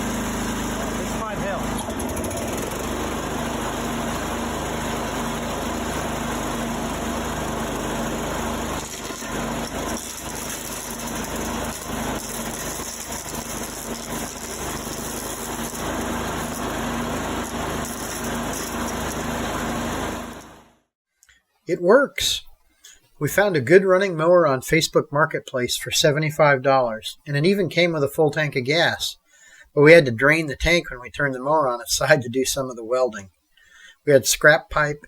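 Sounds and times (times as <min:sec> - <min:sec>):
lawn mower engine running: 0:00.0 - 0:20.8.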